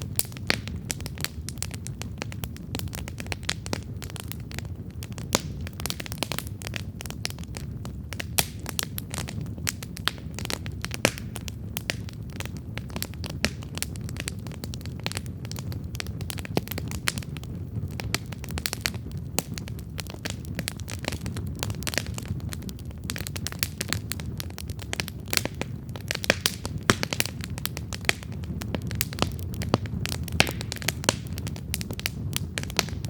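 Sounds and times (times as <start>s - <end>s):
campfire crackling: 0.0s - 33.0s.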